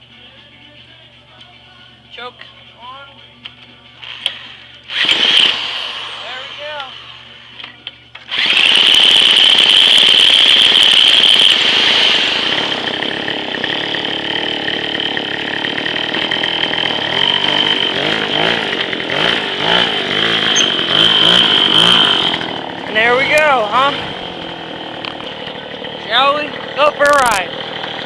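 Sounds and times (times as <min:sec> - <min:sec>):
scooter engine running: 0:04.9 - 0:07.0, 0:08.3 - 0:28.0.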